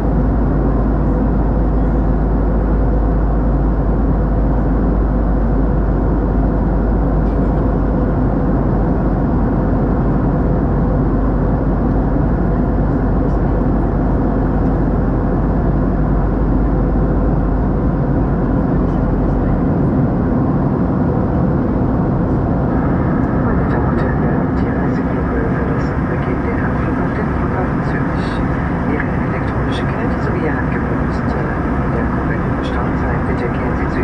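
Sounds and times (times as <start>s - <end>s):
airplane cabin rumble: 0.0s - 34.0s
constant low hum: 0.0s - 34.0s.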